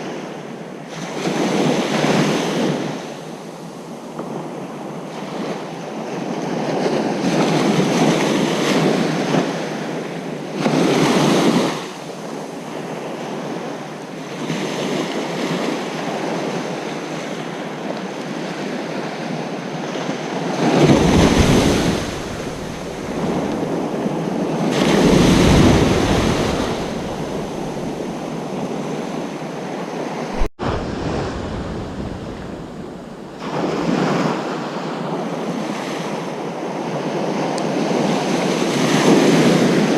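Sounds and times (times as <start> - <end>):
ocean waves washing: 18.8 - 36.8.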